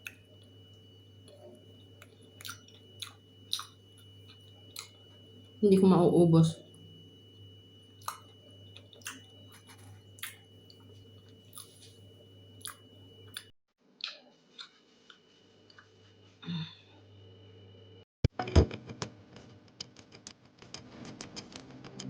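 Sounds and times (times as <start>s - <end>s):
faint steady hum: 0.0s - 19.5s
person chewing: 1.2s - 5.0s, 8.0s - 12.0s, 12.6s - 15.9s
wet mouth clicks: 2.0s - 3.8s, 8.0s - 8.3s.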